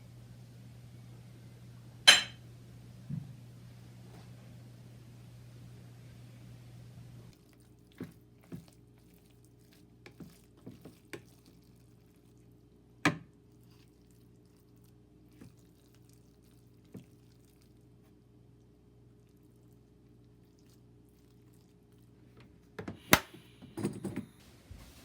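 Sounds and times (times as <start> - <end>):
low steady hum: 0.0 - 25.0
kitchen knocks and clicks: 2.1 - 2.4.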